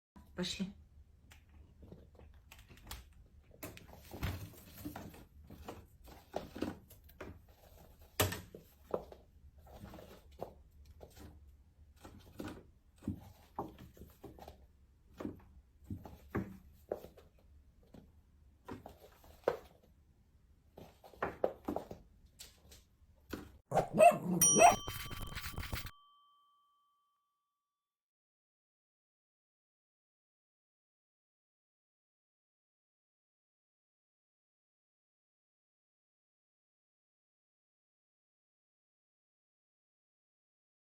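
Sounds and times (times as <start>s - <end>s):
chinchilla barking calls: 23.7s - 25.3s
brief ringing tone: 24.0s - 27.3s.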